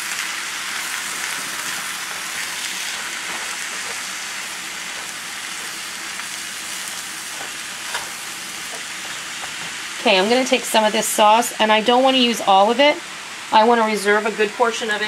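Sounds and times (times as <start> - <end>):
meat sizzling in a skillet: 0.0 - 14.0
wooden spoon scraping a pan: 1.4 - 9.9.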